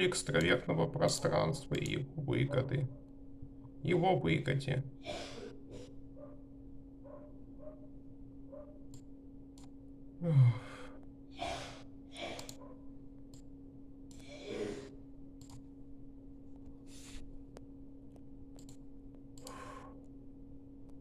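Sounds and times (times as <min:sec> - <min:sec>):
faint steady hum: 0:00.0 - 0:21.0
soft breaths: 0:05.0 - 0:06.4, 0:10.2 - 0:12.8, 0:14.1 - 0:15.0, 0:16.6 - 0:17.6, 0:19.4 - 0:20.2
person sighing: 0:10.2 - 0:12.5, 0:14.2 - 0:15.0.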